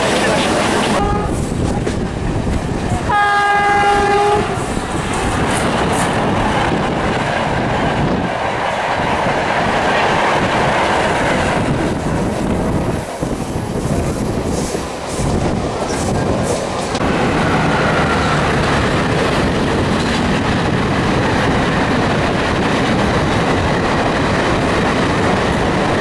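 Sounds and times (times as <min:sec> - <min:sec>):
train coaches rumbling and clacking: 0:00.0 - 0:26.0
train horn: 0:01.0 - 0:01.5, 0:03.1 - 0:04.7.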